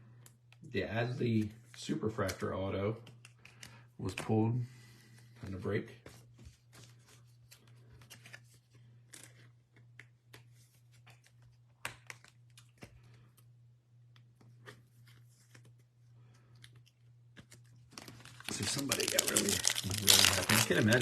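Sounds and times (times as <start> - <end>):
trading cards clicking and rustling: 1.2 - 4.4, 5.5 - 13.5, 16.5 - 21.0.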